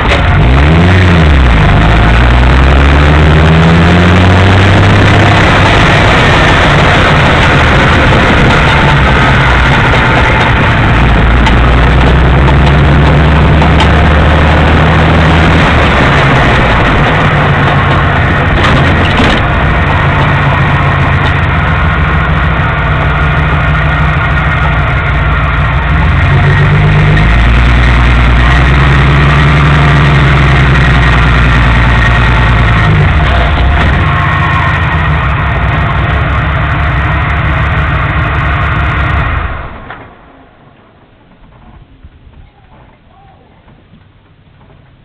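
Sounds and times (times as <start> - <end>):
car engine running: 0.0 - 40.3
sharp knocks: 7.2 - 21.6.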